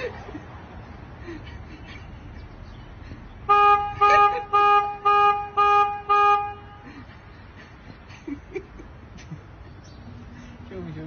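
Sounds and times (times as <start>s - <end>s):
car horn honking: 3.4s - 7.1s.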